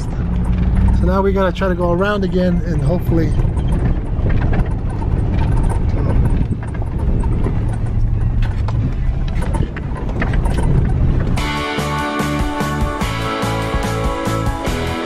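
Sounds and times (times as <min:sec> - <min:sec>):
rattles and clicks: 0:00.0 - 0:11.6
pickup engine and tyre rumble: 0:00.0 - 0:15.0.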